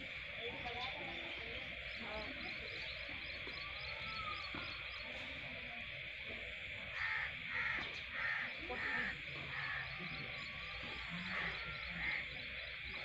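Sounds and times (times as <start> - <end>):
bird calling: 6.9 - 13.0.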